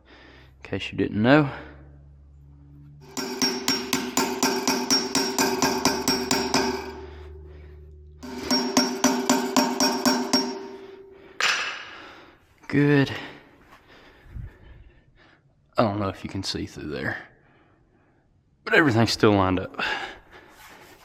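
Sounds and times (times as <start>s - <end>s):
hammer tapping on metal: 3.0s - 7.5s, 8.2s - 11.8s.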